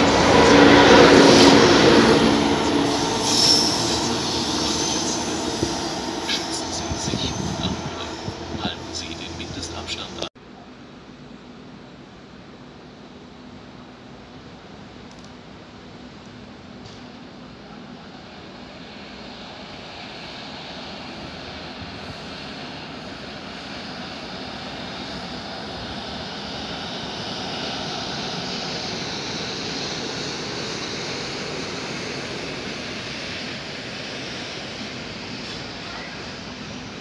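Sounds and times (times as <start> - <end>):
train wheels rolling on rails: 0.0 - 10.3.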